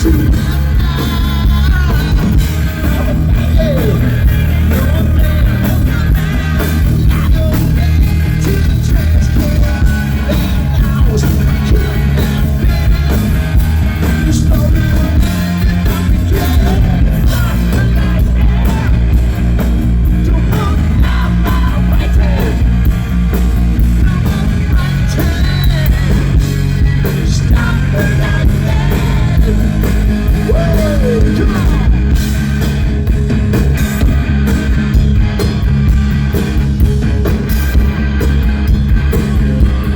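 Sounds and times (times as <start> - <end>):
person singing: 0.0 - 22.8, 23.9 - 32.2
electric guitar: 0.0 - 39.9
hard rock band playing: 0.0 - 39.9.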